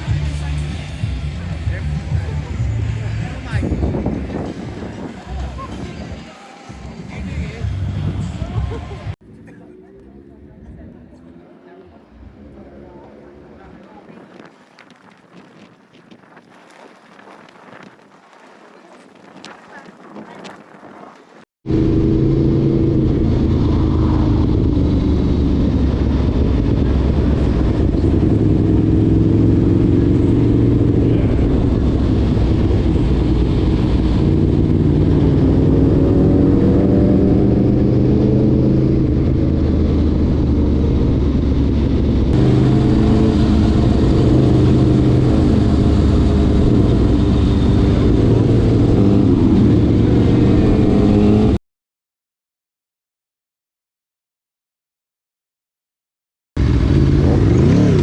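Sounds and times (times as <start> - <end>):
motorcycle engine running: 21.7 - 51.5, 56.6 - 58.0.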